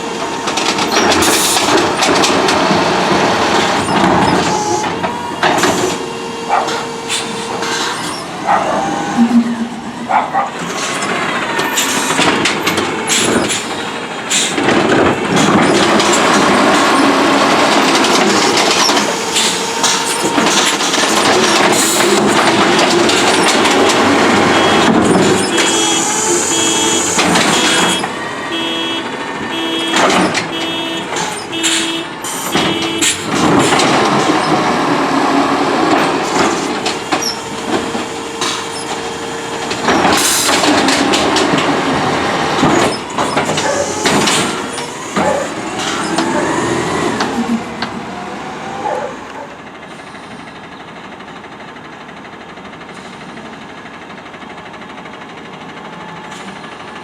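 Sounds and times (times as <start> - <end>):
hydraulic whines: 0.0 - 14.6, 15.3 - 48.0
truck engine running: 0.0 - 57.0
knocks and clanks: 0.2 - 6.0, 6.6 - 28.2, 29.9 - 34.8, 35.9 - 48.0
reversing alarm beeping: 3.6 - 12.0, 23.4 - 33.4
air brake hisses: 6.7 - 10.0, 13.1 - 14.6.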